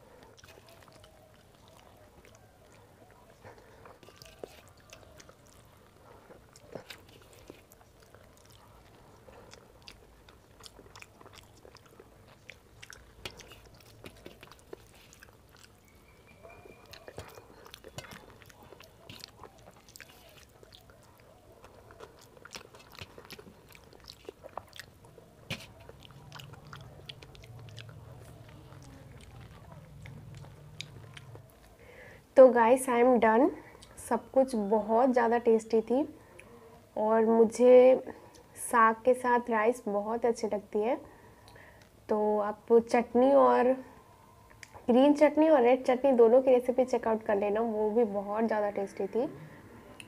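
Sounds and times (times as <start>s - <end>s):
chewing and mouth clicks: 0.0s - 32.2s, 33.6s - 34.0s, 36.2s - 36.7s, 41.3s - 42.0s, 44.4s - 44.9s.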